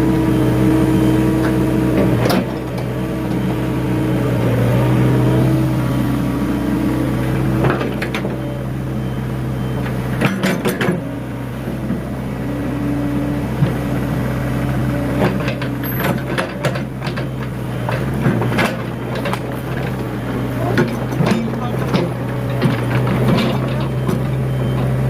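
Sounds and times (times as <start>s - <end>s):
diesel engine idling: 0.0s - 10.3s, 10.9s - 25.0s.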